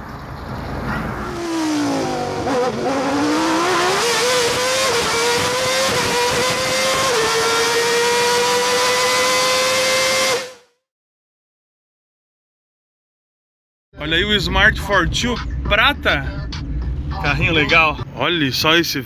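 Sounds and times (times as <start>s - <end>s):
car engine revving: 0.6s - 10.6s.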